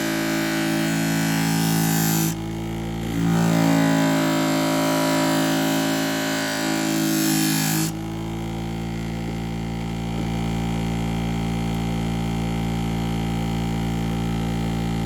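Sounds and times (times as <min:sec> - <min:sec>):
sharpening machine motor hum: 0:00.0 - 0:08.5.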